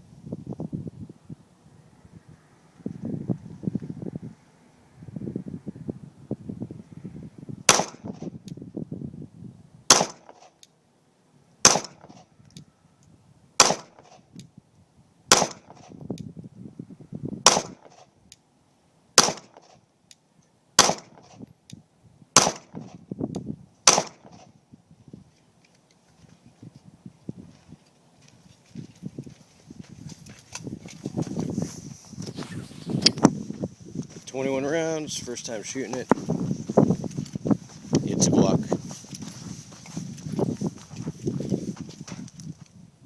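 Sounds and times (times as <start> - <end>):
pistol shots with ringing echo: 7.7 - 8.3, 9.9 - 10.5, 11.6 - 12.3, 13.6 - 14.2, 15.3 - 16.0, 17.4 - 18.0, 19.2 - 19.7, 20.8 - 21.4, 22.4 - 22.9, 23.8 - 24.5.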